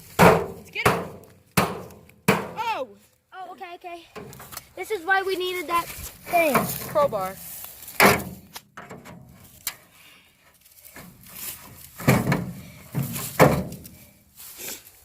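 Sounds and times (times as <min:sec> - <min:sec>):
crowbar knocking and rattling: 0:12.0 - 0:13.9.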